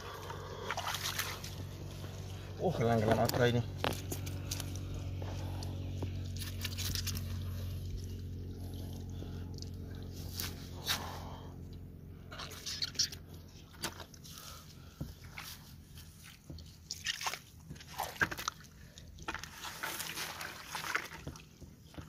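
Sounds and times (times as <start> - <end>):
tractor engine running: 0.0 - 16.9.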